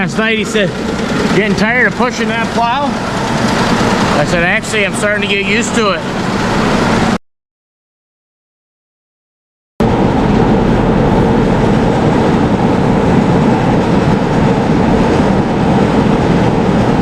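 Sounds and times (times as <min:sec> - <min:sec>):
plow scraping feed: 0:00.0 - 0:07.2
tractor engine under load: 0:00.0 - 0:07.2.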